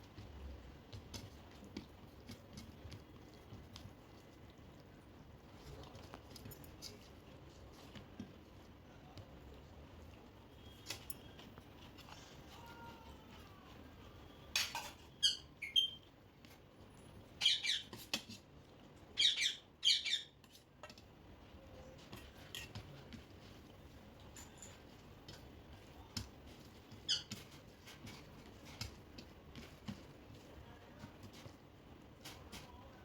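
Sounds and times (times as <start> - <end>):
parrot squawking and chirping: 15.1 - 16.1, 17.4 - 18.0, 19.2 - 20.4, 27.0 - 27.4.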